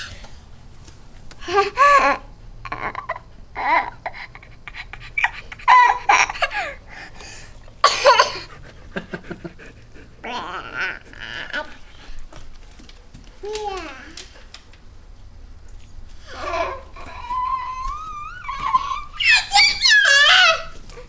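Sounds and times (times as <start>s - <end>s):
toddler laughing: 1.4s - 6.9s, 16.2s - 20.8s
toddler breathing: 6.3s - 7.6s.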